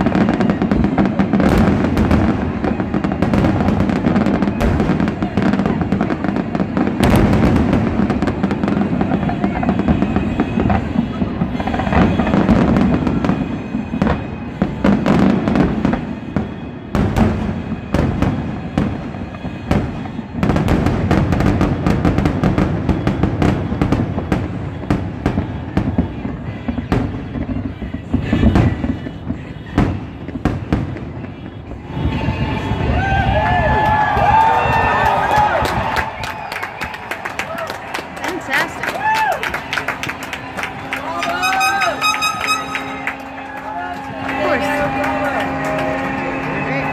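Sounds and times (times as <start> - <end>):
fireworks crackling: 0.0 - 46.9
fireworks shells bursting: 39.6 - 46.9.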